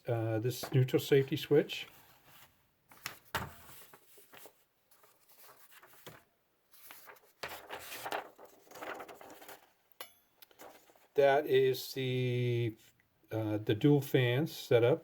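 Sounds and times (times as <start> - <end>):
handling rustling: 0.6 - 6.2, 6.8 - 9.8, 10.4 - 11.2.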